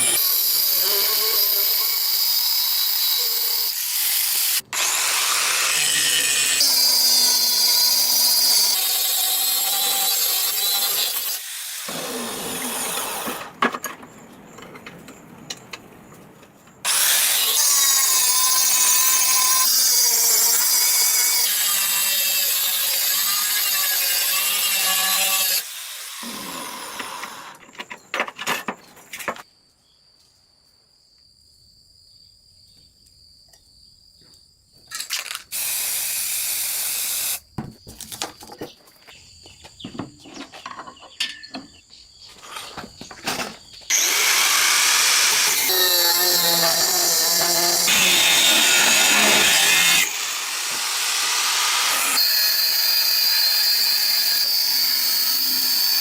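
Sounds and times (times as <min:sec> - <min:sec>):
power tool grinding: 0:00.0 - 0:13.5, 0:16.8 - 0:27.6, 0:43.9 - 0:56.0.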